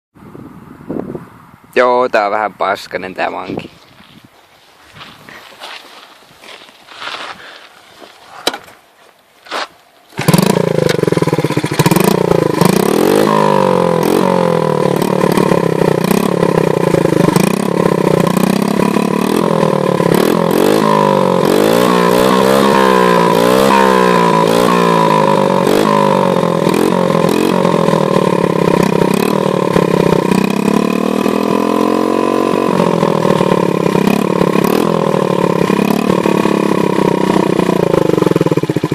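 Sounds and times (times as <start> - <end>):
motorcycle engine running and revving: 10.1 - 38.9.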